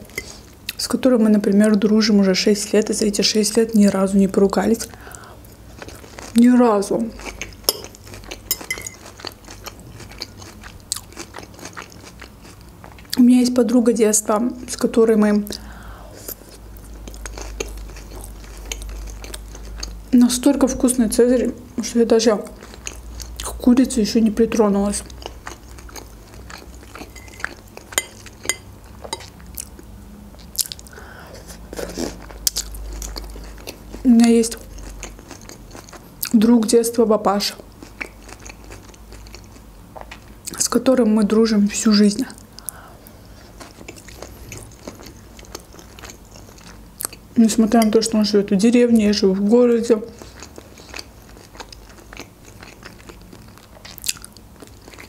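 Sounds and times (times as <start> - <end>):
chewing crunchy salad: 4.8 - 13.2, 16.2 - 20.9, 22.3 - 23.6, 24.6 - 36.7, 37.4 - 40.8, 42.2 - 48.3, 48.9 - 55.0.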